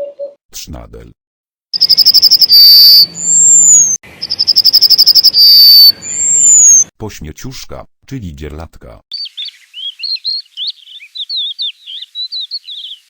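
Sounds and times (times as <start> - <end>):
yellowhammer singing: 1.8 - 6.9, 9.1 - 13.0.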